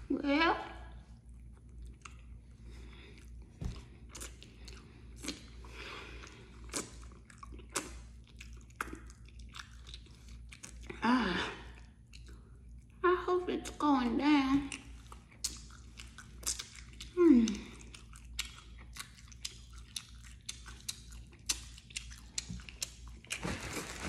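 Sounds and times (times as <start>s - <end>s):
mouth chewing soft food: 0.8s - 11.0s, 11.6s - 13.0s, 14.6s - 23.5s
wet mouth smacks and clicks: 14.7s - 17.2s, 17.9s - 23.0s.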